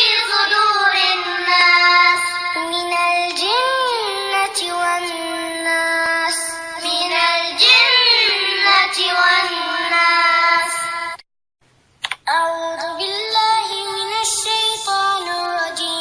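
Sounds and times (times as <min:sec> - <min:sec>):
child chanting melodically: 0:00.0 - 0:11.1.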